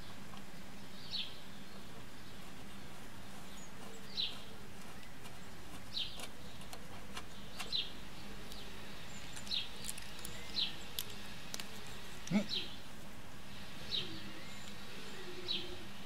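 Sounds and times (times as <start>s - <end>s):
steady low hum: 0.0s - 16.0s
bird calling: 11.8s - 16.0s.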